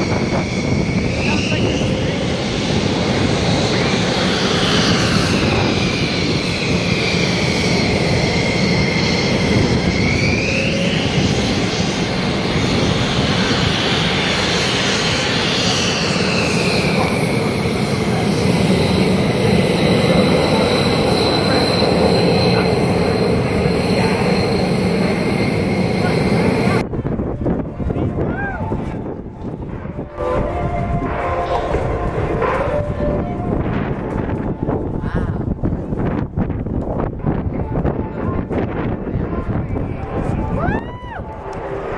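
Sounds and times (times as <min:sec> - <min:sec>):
plane engine and propeller whining: 0:00.0 - 0:41.9.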